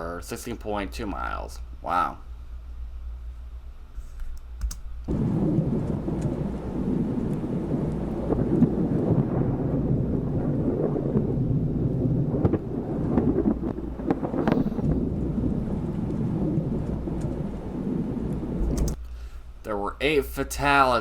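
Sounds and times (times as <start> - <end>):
sharp clicks: 4.2 - 4.9, 18.6 - 19.2
rain: 5.1 - 19.0
thunder: 5.1 - 19.0.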